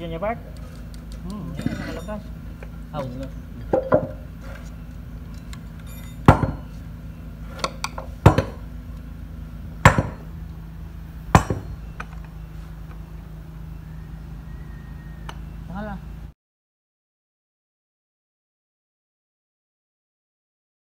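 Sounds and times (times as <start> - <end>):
hammer striking metal: 5.9 - 6.8, 7.6 - 8.7, 9.8 - 10.3, 11.3 - 11.8.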